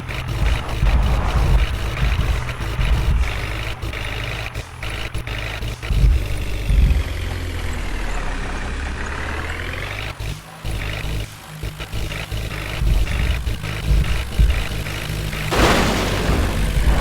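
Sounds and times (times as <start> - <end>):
diesel engine running: 0.0 - 17.0
high whine: 0.1 - 4.2.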